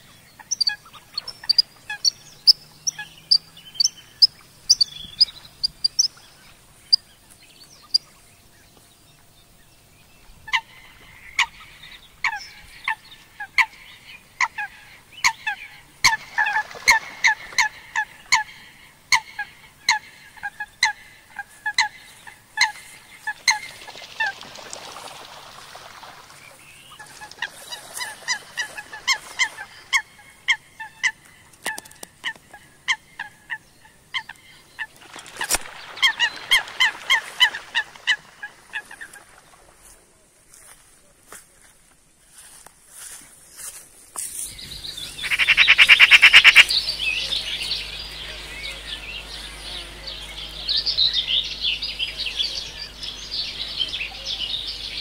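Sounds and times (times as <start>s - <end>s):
short high bird chirps: 44.5s - 50.0s
repeated bird call: 44.6s - 55.0s.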